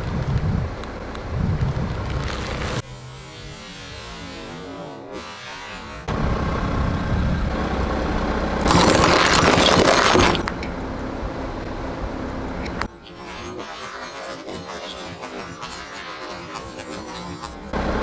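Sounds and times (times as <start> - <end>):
car rolling: 0.0 - 2.8, 5.6 - 13.5, 17.4 - 18.0.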